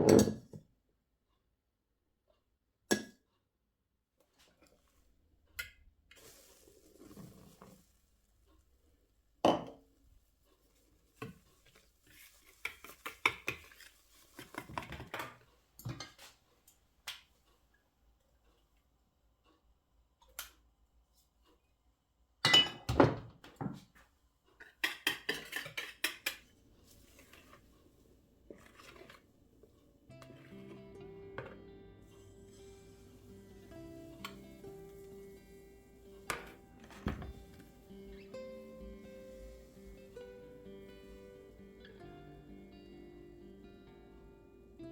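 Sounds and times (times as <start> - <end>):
dishes and cutlery clattering: 22.5 - 23.8, 24.6 - 26.6.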